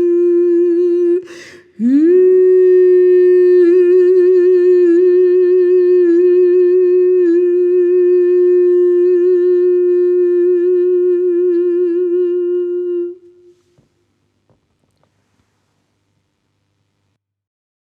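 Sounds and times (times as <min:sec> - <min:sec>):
person humming a held note: 0:00.0 - 0:14.0.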